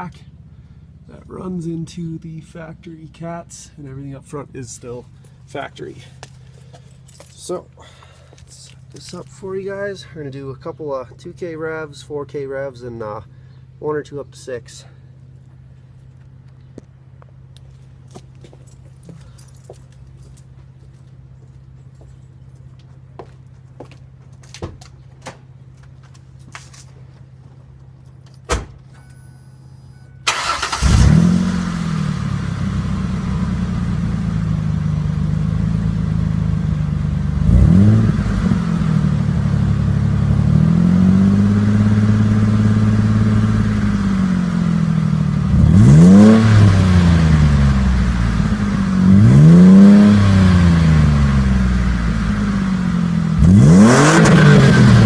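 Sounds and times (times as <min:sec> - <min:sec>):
car engine idling: 0:00.0 - 0:26.4, 0:29.9 - 0:55.0
car engine starting: 0:28.3 - 0:55.0
engine revving: 0:30.3 - 0:55.0.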